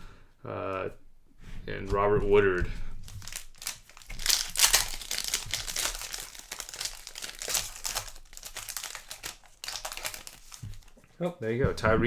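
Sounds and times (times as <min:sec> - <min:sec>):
cards crinkling and rustling: 0:03.0 - 0:11.0.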